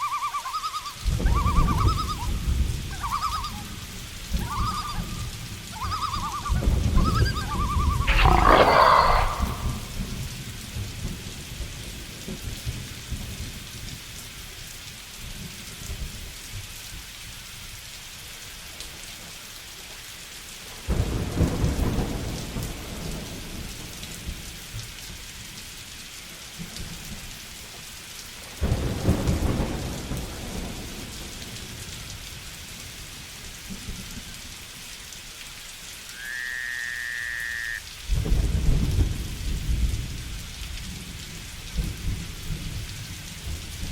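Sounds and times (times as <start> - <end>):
steady rain: 0.0 - 43.9
animal calls: 7.8 - 10.0, 36.2 - 37.8.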